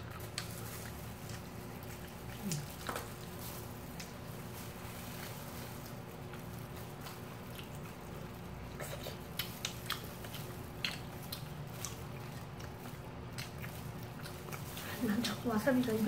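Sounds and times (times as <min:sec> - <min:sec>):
low steady hum: 0:00.0 - 0:16.0
people chewing fried chicken: 0:00.0 - 0:16.0.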